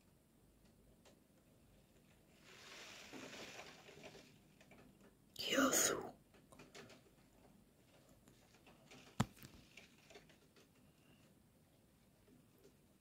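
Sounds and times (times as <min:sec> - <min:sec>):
raindrops ticking on a window: 0:00.5 - 0:05.3, 0:06.2 - 0:11.4.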